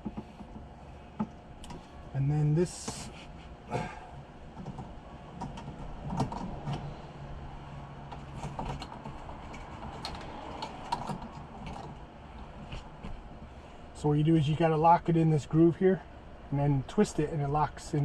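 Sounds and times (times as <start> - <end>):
plastic parts clicking and scraping: 8.1 - 12.0.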